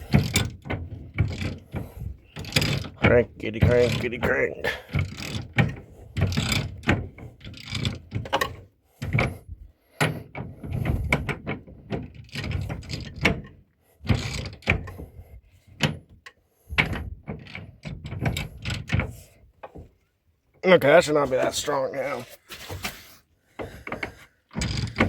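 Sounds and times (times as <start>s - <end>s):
ratchet wrench cranking: 0.0s - 4.3s, 4.9s - 8.6s, 24.0s - 25.0s.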